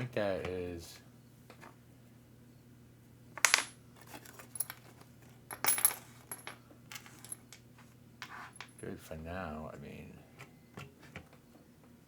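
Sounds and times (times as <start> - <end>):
metal parts and tools clattering: 3.4 - 7.5.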